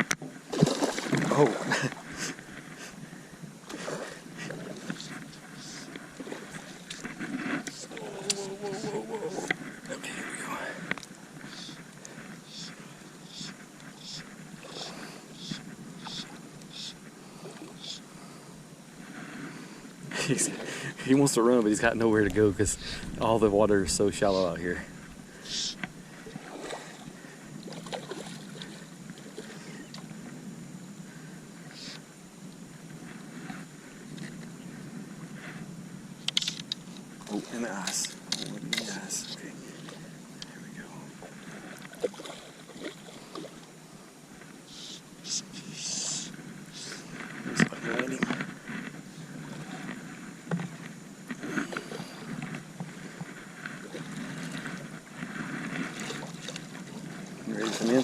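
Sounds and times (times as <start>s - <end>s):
water lapping against boat hull: 3.6s - 18.0s, 21.6s - 30.4s, 36.2s - 45.4s, 46.1s - 58.0s.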